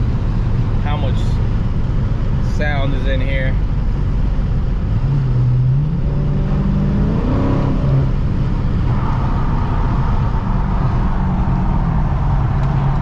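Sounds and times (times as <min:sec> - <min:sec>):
exhaust drone: 0:00.0 - 0:13.0
car engine revving: 0:03.6 - 0:13.0.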